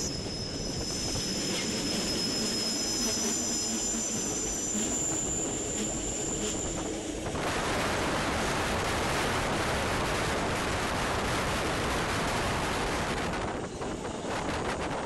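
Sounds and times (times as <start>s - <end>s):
high wheel squeal: 0.0s - 9.2s
wheels rumbling on rails: 0.0s - 15.0s
wind on microphone: 6.7s - 15.0s.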